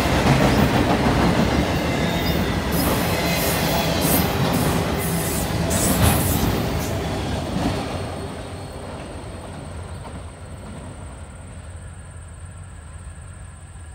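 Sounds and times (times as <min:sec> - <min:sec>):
train wheels clattering: 0:00.0 - 0:11.1.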